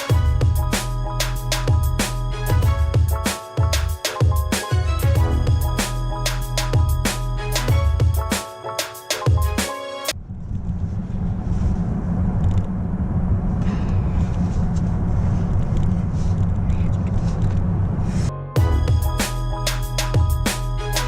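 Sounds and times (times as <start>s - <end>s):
background music: 0.0s - 10.2s, 18.3s - 21.0s.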